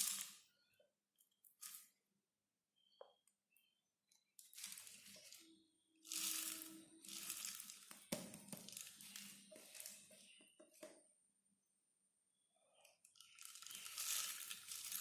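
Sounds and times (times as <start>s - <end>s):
crinkling and rustling scraps: 6.1s - 10.4s.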